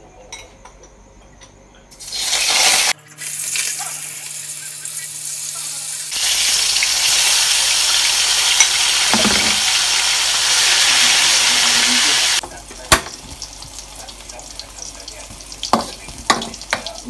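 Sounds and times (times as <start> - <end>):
food sizzling in hot oil: 2.0 - 17.0.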